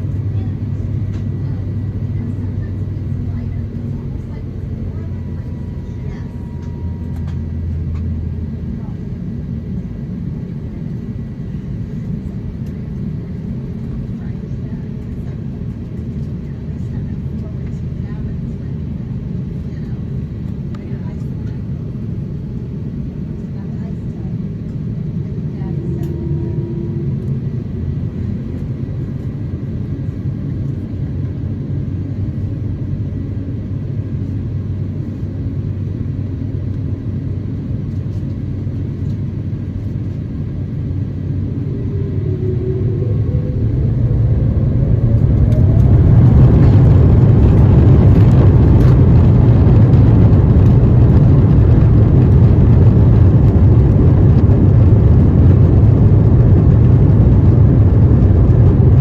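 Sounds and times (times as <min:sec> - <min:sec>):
jet engines rumbling and whining: 0:00.0 - 0:59.0.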